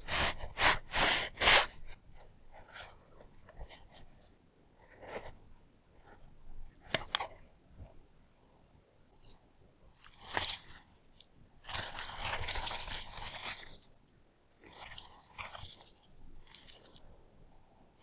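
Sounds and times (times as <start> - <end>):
hands rustling fabric: 0.0 - 7.9, 9.2 - 14.0, 14.6 - 18.0.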